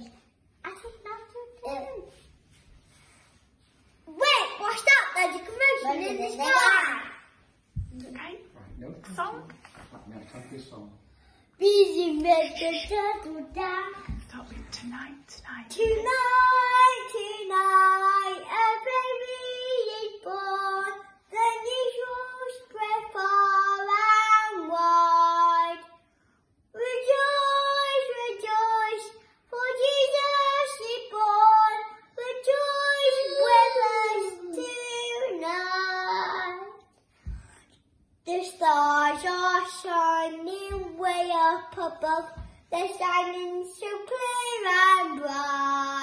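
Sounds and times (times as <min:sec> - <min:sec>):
girl singing unaccompanied: 0:11.6 - 0:26.0, 0:26.7 - 0:36.9, 0:38.2 - 0:46.0.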